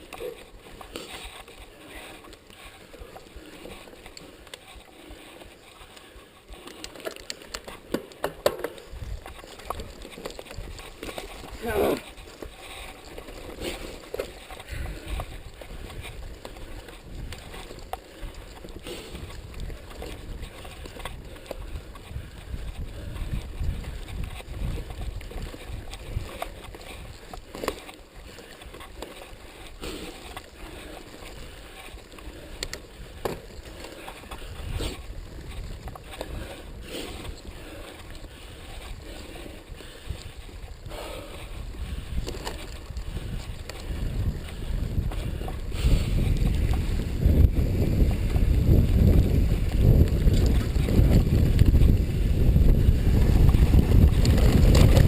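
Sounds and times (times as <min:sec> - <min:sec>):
bike rattling over bumps: 0:00.0 - 0:55.0
wind rumbling on microphone: 0:08.6 - 0:55.0.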